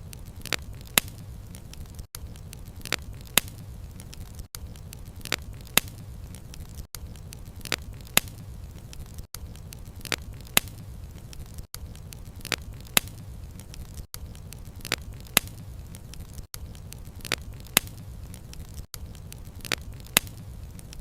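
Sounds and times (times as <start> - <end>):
bonfire crackling and popping: 0.0 - 21.0.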